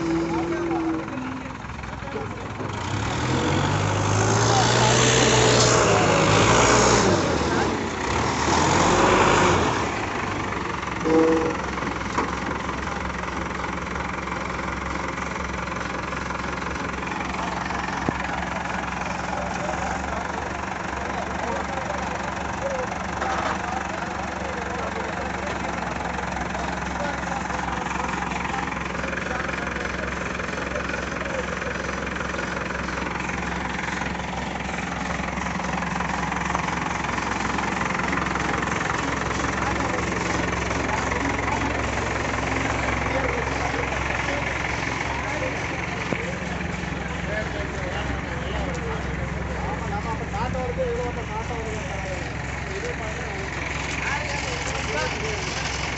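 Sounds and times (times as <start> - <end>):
diesel engine idling: 0.0 - 55.9
short steady tone: 11.0 - 11.7.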